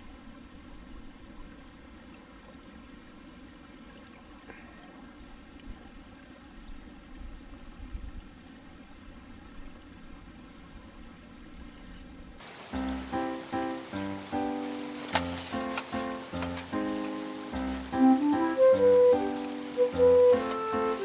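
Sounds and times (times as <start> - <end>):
stream babbling over rocks: 12.4 - 21.0.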